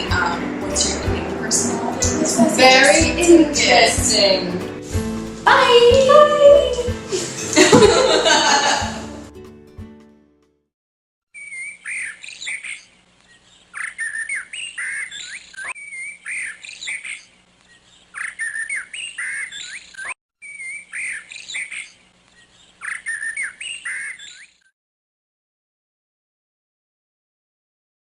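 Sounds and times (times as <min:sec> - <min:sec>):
birds chirping: 0:00.0 - 0:04.5, 0:11.3 - 0:24.7.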